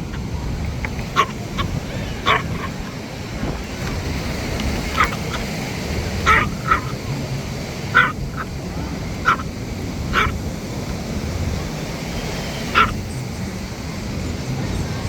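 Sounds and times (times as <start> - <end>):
low background noise: 0.0 - 15.0
dog barking sharply: 1.1 - 2.9, 4.7 - 7.2, 7.9 - 8.5, 9.2 - 9.5, 10.1 - 10.4, 12.6 - 13.0.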